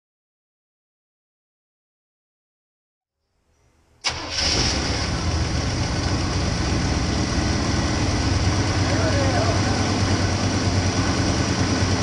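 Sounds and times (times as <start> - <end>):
truck engine idling: 4.0 - 12.0.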